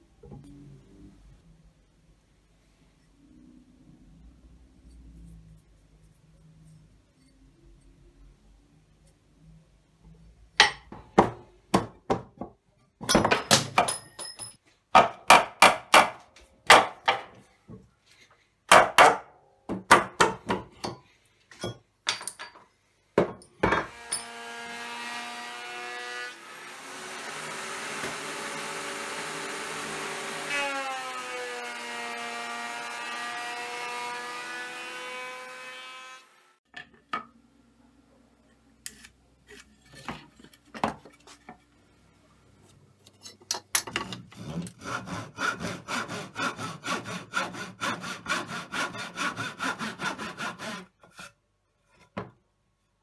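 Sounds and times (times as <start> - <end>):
rasping hand strokes on wood: 44.4 - 50.9.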